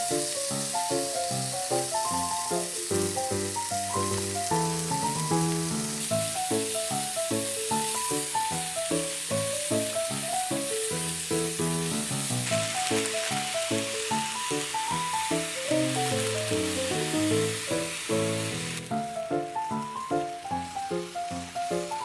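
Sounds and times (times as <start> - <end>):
background music melody: 0.0 - 22.0
food sizzling in a pan: 0.0 - 22.0.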